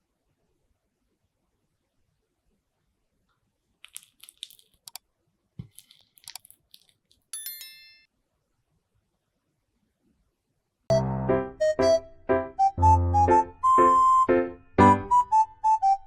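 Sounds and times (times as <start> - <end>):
crisp crunching and scraping: 3.8 - 5.0, 5.6 - 7.3.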